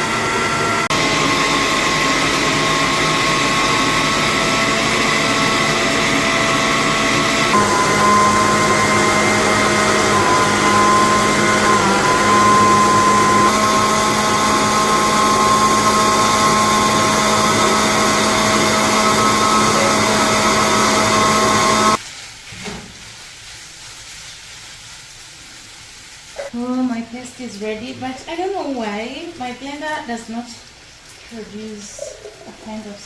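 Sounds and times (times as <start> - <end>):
electric blender motor running: 0.0 - 22.0.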